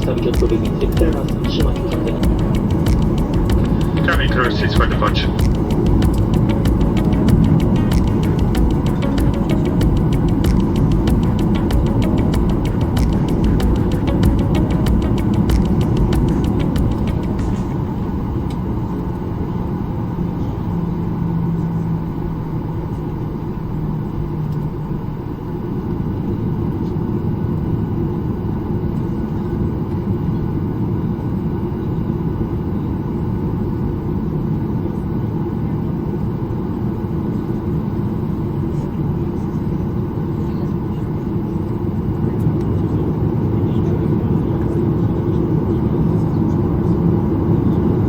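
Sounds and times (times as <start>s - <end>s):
jet engines rumbling in cabin: 0.0s - 48.0s
low hum: 0.0s - 48.0s.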